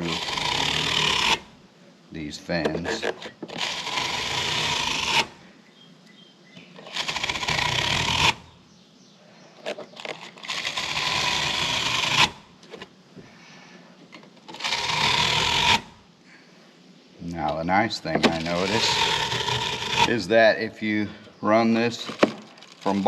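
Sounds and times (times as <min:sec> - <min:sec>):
brush scraping metal fins: 0:00.0 - 0:01.5, 0:02.2 - 0:05.4, 0:06.8 - 0:08.4, 0:09.6 - 0:12.9, 0:14.1 - 0:15.9, 0:17.5 - 0:20.4, 0:21.5 - 0:23.0.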